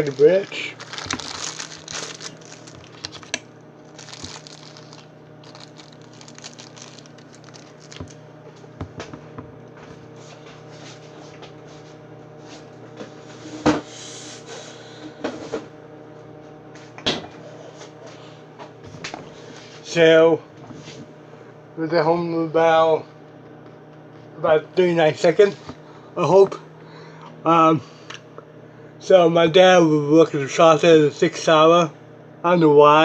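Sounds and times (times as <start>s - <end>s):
handling rustles: 0.0s - 8.2s
microwave oven humming: 0.0s - 33.0s.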